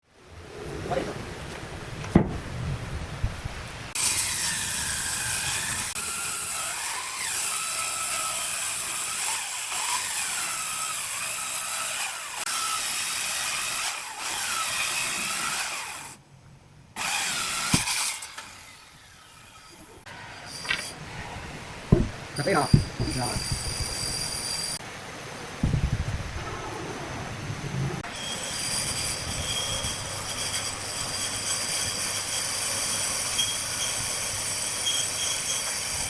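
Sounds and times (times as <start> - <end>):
power tool cutting wood: 4.0 - 16.2, 17.0 - 21.0.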